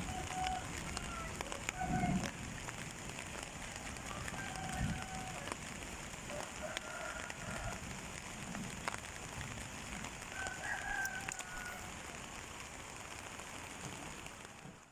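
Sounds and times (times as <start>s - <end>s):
steady rain: 0.0s - 14.9s
rooster crowing: 3.8s - 5.6s, 6.3s - 8.0s, 10.3s - 12.0s.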